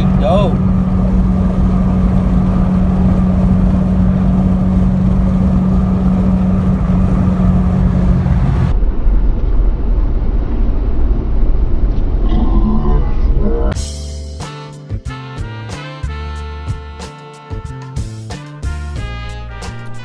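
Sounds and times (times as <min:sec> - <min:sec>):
car road and engine noise: 0:00.0 - 0:12.4, 0:18.6 - 0:20.0
dull low rumble: 0:00.0 - 0:14.4.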